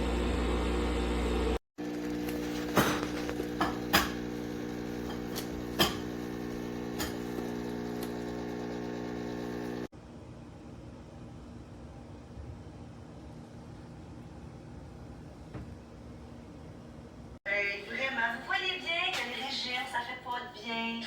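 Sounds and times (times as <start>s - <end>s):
espresso machine humming: 0.0s - 9.9s.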